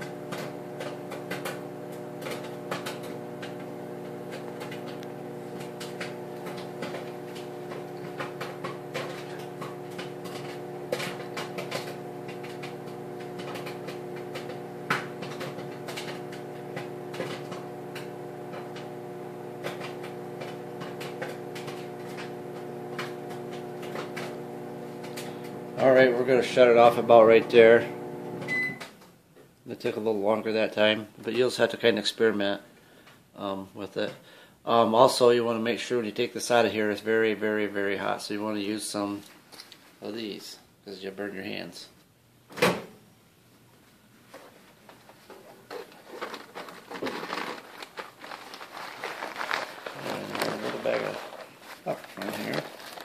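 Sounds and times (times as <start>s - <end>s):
popcorn popping: 0.0s - 26.0s, 45.8s - 53.0s
microwave oven hum: 0.0s - 29.0s.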